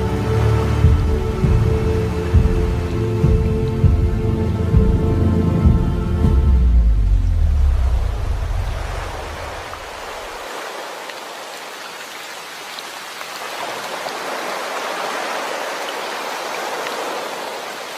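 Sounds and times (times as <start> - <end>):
deep low rumble: 0.8 - 10.0.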